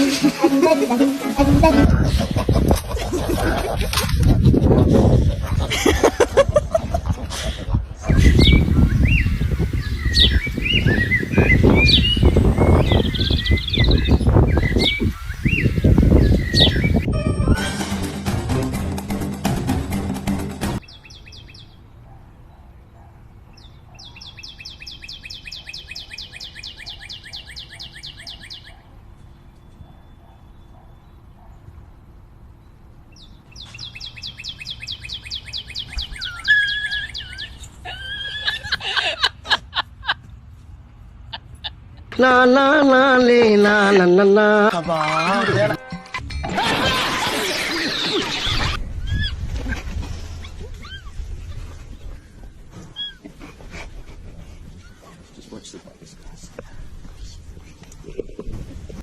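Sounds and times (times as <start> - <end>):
birds chirping: 7.0 - 17.5, 20.8 - 39.3
steady bird whistle: 8.1 - 17.6.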